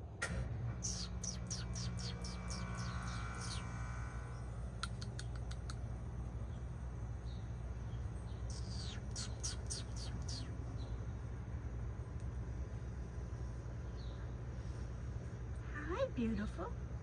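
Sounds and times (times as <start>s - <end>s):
steady low hum: 0.0s - 17.0s
sharp ticks: 4.7s - 5.9s.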